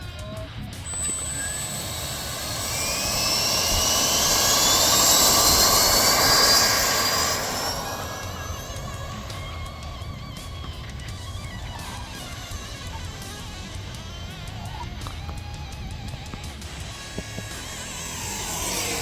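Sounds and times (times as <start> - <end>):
electric ducted fan whine: 0.0 - 19.0
rushing air: 0.8 - 12.2.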